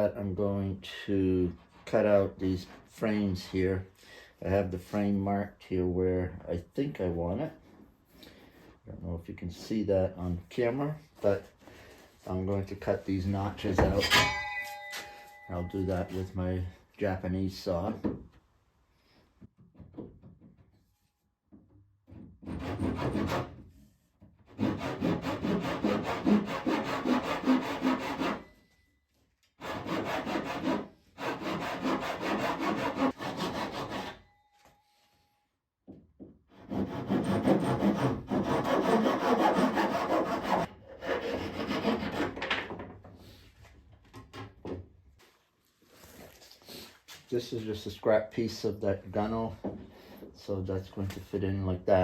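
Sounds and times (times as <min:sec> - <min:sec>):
hand saw cutting wood: 0:22.2 - 0:23.7, 0:24.4 - 0:28.6, 0:29.6 - 0:34.3, 0:36.5 - 0:42.6.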